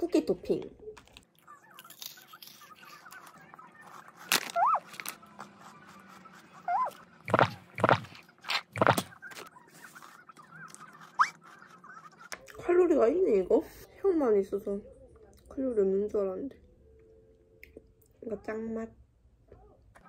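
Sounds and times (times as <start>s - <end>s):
crunchy cookie being chewed: 1.0s - 12.6s.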